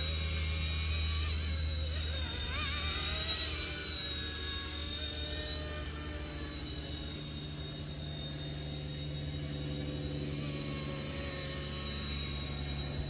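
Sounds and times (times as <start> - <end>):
rc helicopter motor whine: 0.0 - 13.0.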